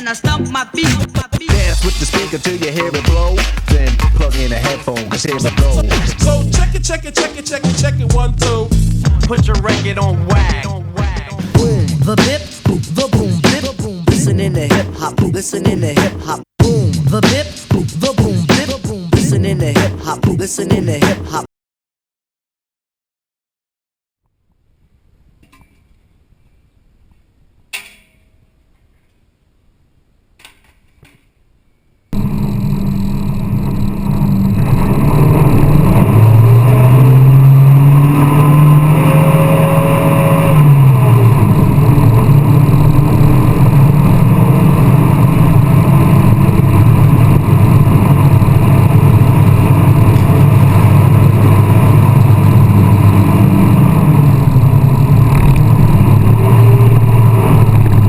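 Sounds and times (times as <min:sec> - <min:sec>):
car engine revving: 0:01.5 - 0:13.5, 0:32.2 - 0:58.0.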